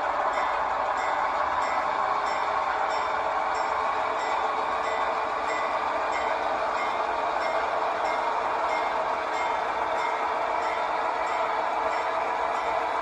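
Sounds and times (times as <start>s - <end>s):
train rolling on track: 0.0s - 13.0s.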